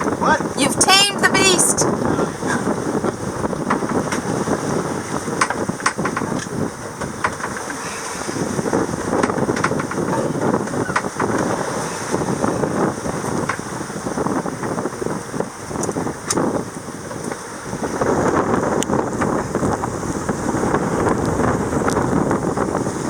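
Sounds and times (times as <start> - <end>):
water rushing: 0.0 - 3.4
wind buffeting microphone: 0.0 - 23.0.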